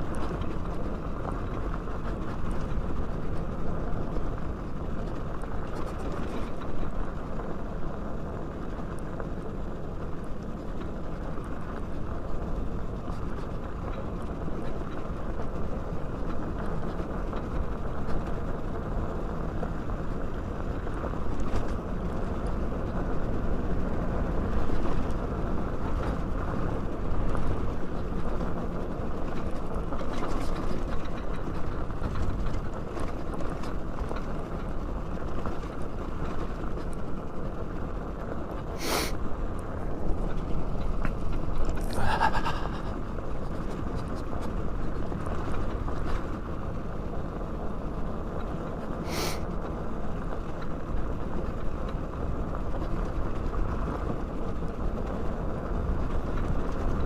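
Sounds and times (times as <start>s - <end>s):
wind rumble on microphone: 0.0s - 57.0s.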